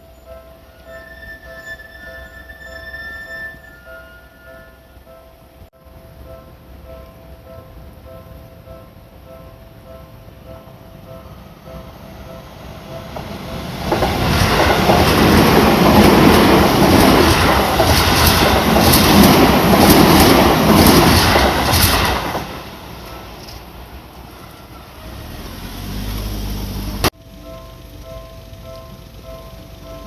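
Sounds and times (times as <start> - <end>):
faint crossing warning bell: 0.0 - 20.6, 22.9 - 25.3, 27.2 - 30.0
electric train passing: 0.0 - 30.0
wheels clacking over rail joints: 11.0 - 30.0.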